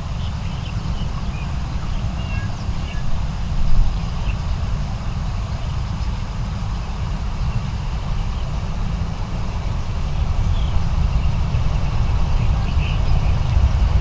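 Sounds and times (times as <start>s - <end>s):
low outdoor rumble: 7.2s - 14.0s
small birds chirping: 9.6s - 14.0s.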